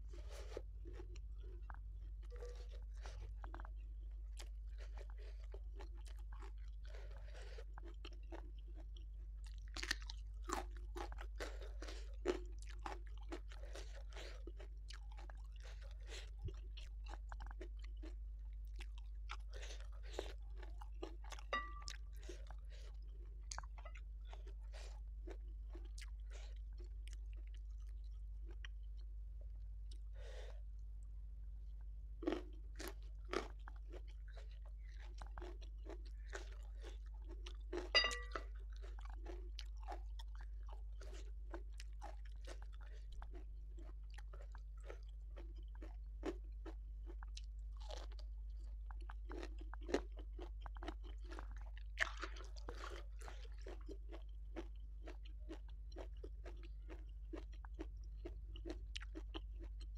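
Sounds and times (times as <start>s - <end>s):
low electrical hum: 0.0s - 59.9s
wet chewing clicks: 4.4s - 29.1s, 32.2s - 59.9s.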